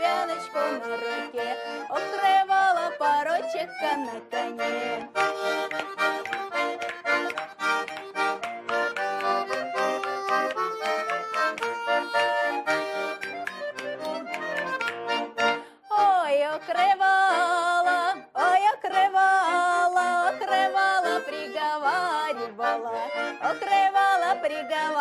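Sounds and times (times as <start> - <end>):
person singing: 0.0 - 7.3, 15.4 - 25.0
accordion folk tune: 0.0 - 25.0.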